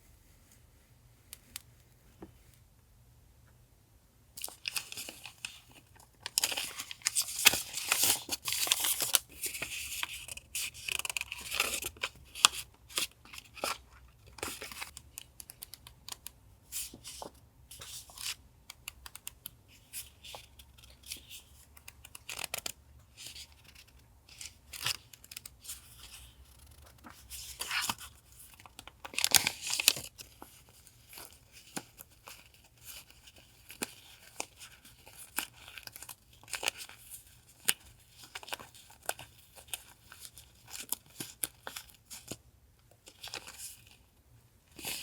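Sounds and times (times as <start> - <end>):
packaging crinkling and tearing: 4.4 - 16.2, 20.2 - 42.4.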